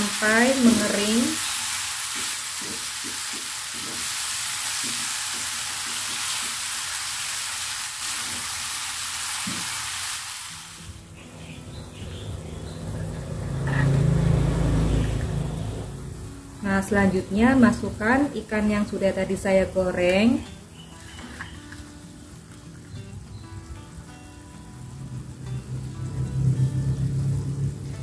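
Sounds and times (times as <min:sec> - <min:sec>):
spice paste sizzling in pan: 0:00.0 - 0:11.2, 0:14.3 - 0:28.0
spatula scraping pan: 0:13.5 - 0:14.4.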